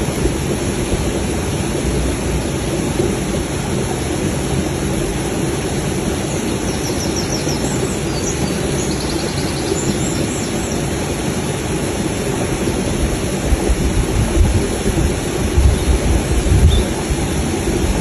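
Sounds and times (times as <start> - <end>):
faint high bird chirps: 6.3 - 10.8.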